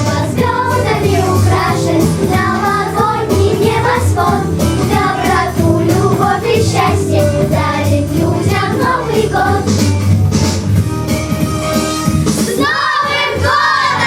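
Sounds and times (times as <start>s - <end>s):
children's choir singing: 0.0s - 9.9s, 12.4s - 14.0s
instrumental backing track: 0.0s - 13.8s.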